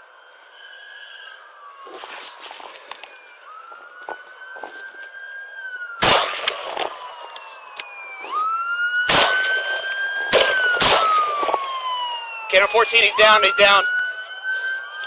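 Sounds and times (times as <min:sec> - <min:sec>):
police sirens wailing: 0:00.0 - 0:15.0
gunshots: 0:06.0 - 0:06.9, 0:09.0 - 0:11.6.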